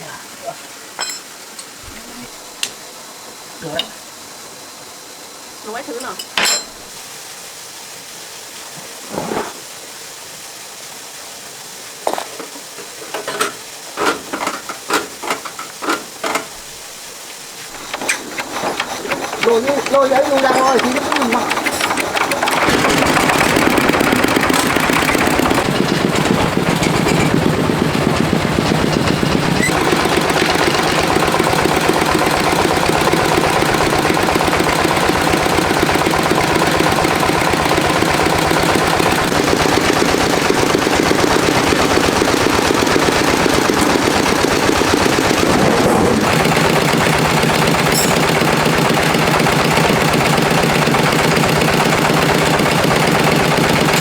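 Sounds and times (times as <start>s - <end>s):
tractor diesel engine chugging: 17.7s - 54.0s.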